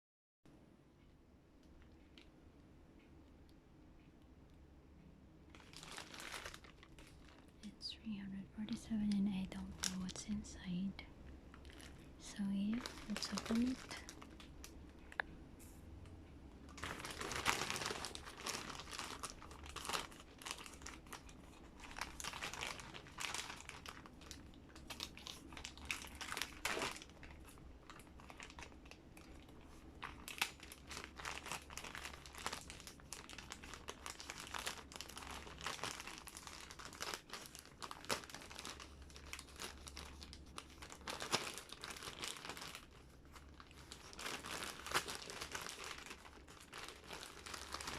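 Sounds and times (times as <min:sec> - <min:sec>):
packaging crinkling and crackling: 0:05.5 - 0:15.3, 0:16.6 - 0:47.9
packaging tearing: 0:16.8 - 0:47.9.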